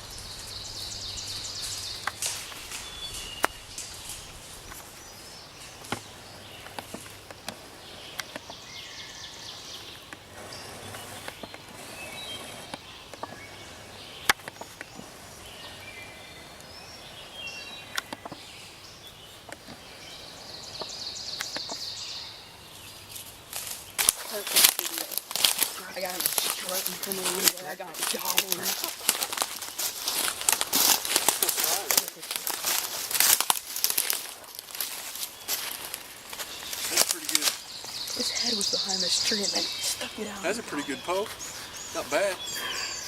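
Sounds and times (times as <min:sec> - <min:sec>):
songbirds chirping: 0:00.0 - 0:43.0
hissing chorus: 0:24.3 - 0:43.0.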